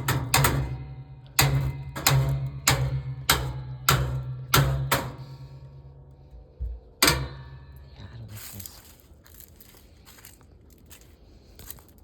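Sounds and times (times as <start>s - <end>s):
hammer striking sheet metal: 0.0s - 5.9s, 7.0s - 8.0s
metal ringing: 0.0s - 8.5s.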